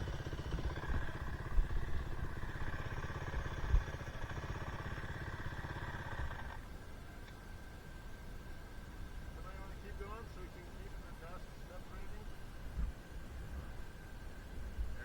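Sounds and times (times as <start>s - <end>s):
dirt bike engine running: 0.0s - 6.7s.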